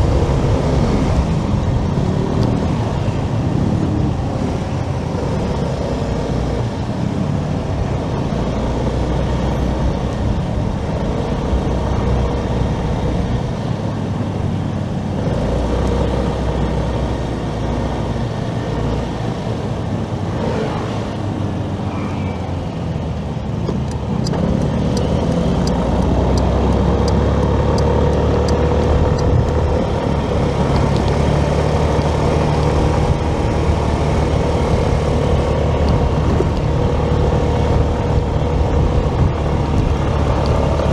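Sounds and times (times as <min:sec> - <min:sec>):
motorcycle engine drone: 0:00.0 - 0:40.9
wind and road rumble: 0:00.0 - 0:40.9
faint regular ticking: 0:23.8 - 0:29.8.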